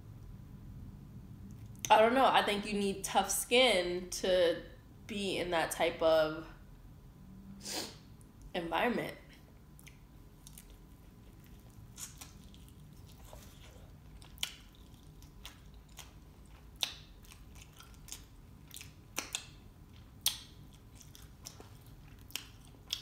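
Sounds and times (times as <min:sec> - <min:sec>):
person chewing: 0:09.7 - 0:23.0
wet mouth clicks and smacks: 0:14.2 - 0:23.0.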